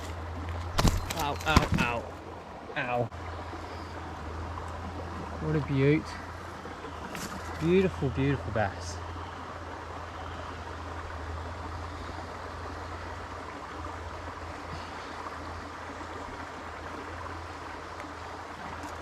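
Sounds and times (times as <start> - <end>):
creek water running: 0.0 - 19.0.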